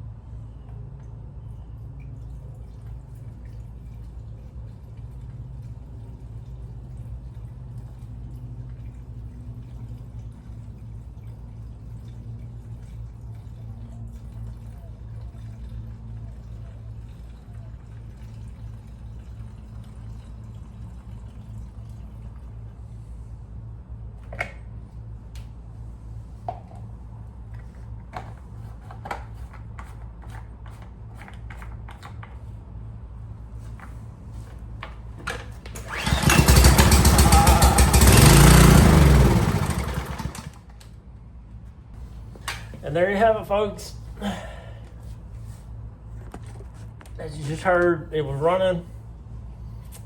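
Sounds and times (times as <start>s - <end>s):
small gasoline engine running: 35.3s - 40.7s.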